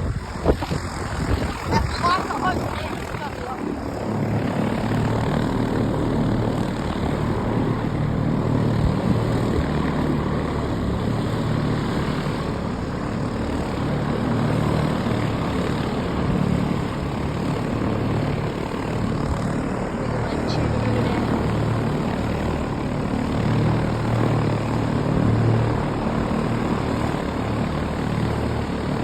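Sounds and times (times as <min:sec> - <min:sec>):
propeller aircraft engine running: 0:00.0 - 0:29.0.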